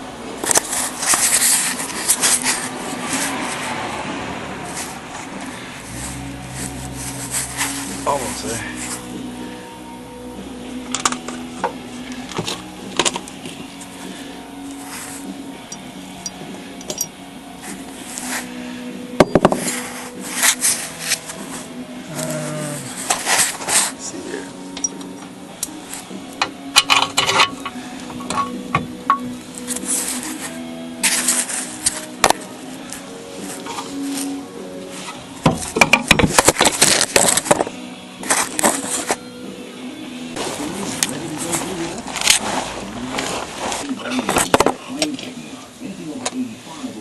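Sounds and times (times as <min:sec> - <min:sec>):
sharp metallic clanks and clicks: 0:15.7 - 0:17.1
metal tools clinking and scraping: 0:15.7 - 0:17.2, 0:22.9 - 0:25.2, 0:26.8 - 0:30.4
sharp metallic clanks: 0:26.4 - 0:29.4.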